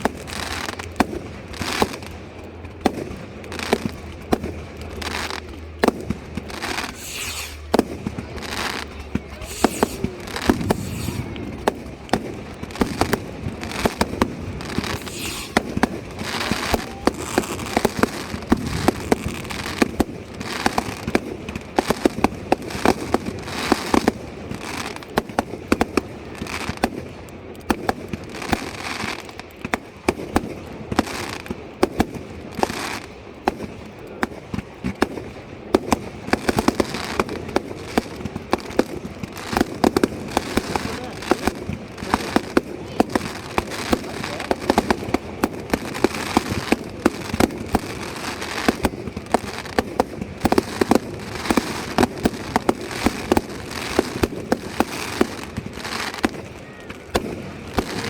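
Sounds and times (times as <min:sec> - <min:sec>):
fireworks bangs: 0:00.0 - 0:58.0
fireworks crackling: 0:00.0 - 0:58.0.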